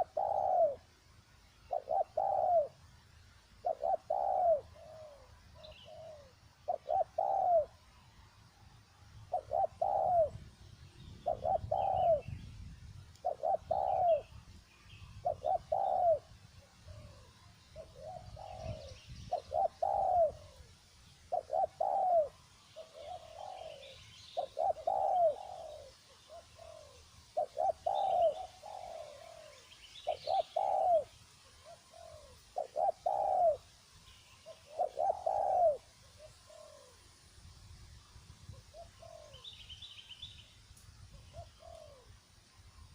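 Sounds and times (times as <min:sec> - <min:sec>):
dove cooing: 0:00.0 - 0:00.9, 0:01.7 - 0:02.8, 0:03.6 - 0:07.8, 0:09.3 - 0:10.5, 0:11.1 - 0:12.4, 0:13.2 - 0:14.4, 0:15.0 - 0:20.7, 0:21.3 - 0:33.7, 0:34.4 - 0:37.0, 0:38.5 - 0:39.6, 0:41.1 - 0:42.2
small birds chirping: 0:00.0 - 0:37.1.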